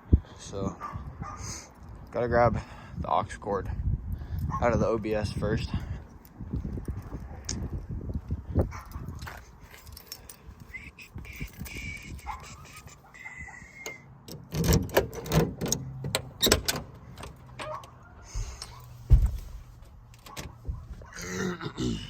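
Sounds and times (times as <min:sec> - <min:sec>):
handling clicks and rattles: 0:08.7 - 0:10.7, 0:13.8 - 0:21.1
loud thump: 0:18.4 - 0:19.6.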